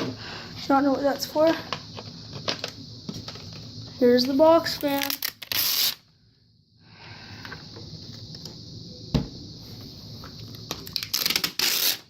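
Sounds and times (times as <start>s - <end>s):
crackling packaging: 4.6s - 6.0s, 10.5s - 12.0s.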